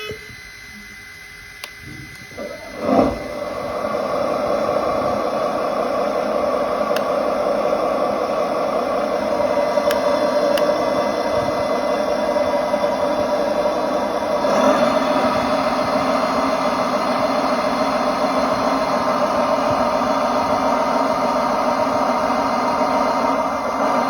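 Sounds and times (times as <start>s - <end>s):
mechanical rushing noise: 1.9s - 7.5s.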